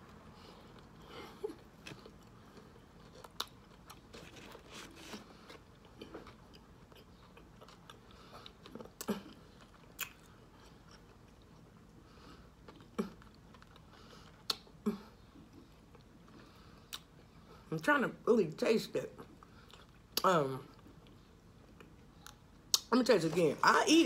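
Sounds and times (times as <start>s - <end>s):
soft crunching while chewing: 0.0s - 17.8s, 19.0s - 23.6s
wet mouth clicks: 14.4s - 14.7s, 22.3s - 22.9s.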